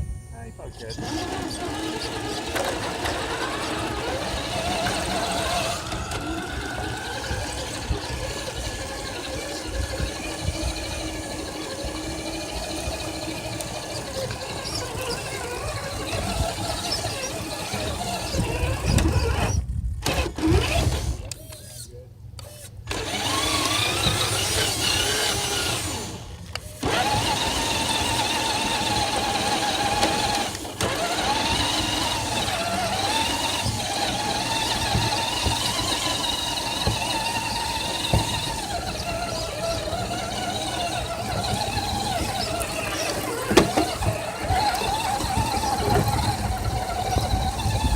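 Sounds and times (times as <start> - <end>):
rc car motor whine: 0.0 - 47.9.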